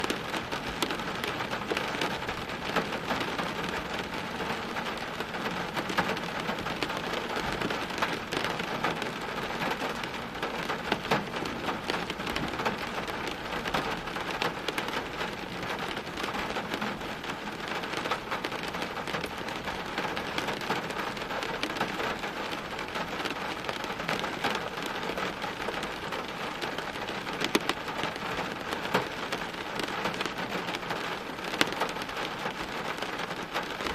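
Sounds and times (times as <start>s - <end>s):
rain drops hitting hard surface: 0.0s - 33.9s.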